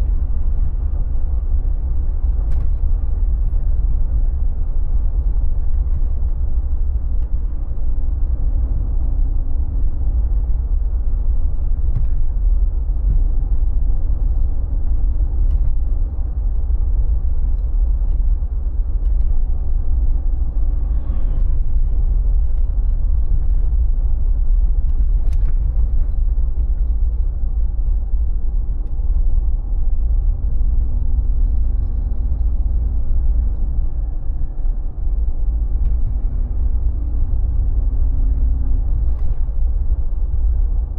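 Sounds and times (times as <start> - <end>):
car engine and road rumble: 0.0 - 40.9
faint engine hum: 0.0 - 40.9.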